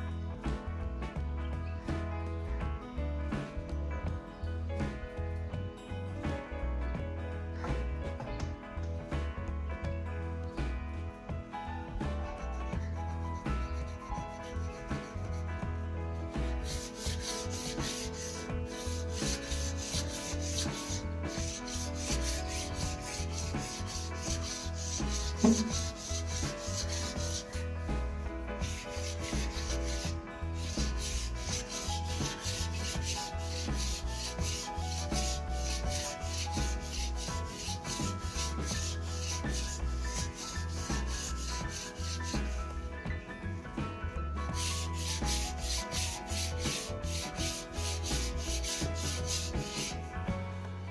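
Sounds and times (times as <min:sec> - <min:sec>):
sandpaper rubbing on wood: 0:12.3 - 0:15.5, 0:16.2 - 0:42.9, 0:44.5 - 0:50.1
loud knock: 0:25.3 - 0:26.1.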